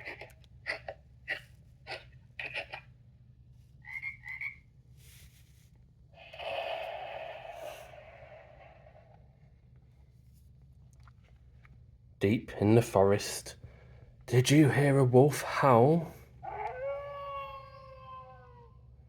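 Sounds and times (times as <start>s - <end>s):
toad croaking: 3.8s - 4.6s.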